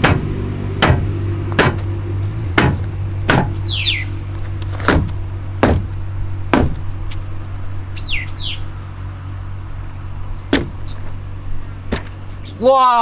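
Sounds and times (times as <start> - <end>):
steady low hum: 0.0 - 12.7
bird chirping: 0.0 - 13.0
plastic knocks and clicks: 11.9 - 12.4.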